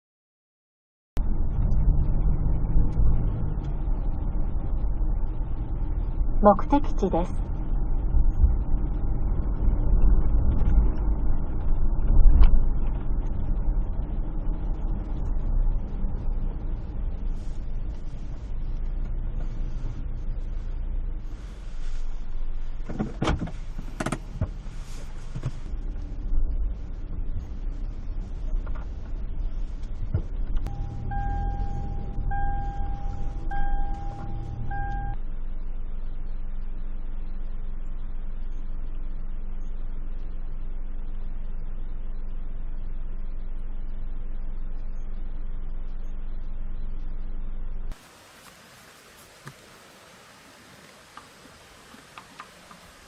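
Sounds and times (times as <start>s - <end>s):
car engine and tyres rumbling: 1.2s - 53.0s
electronic chime beeping: 30.7s - 35.2s.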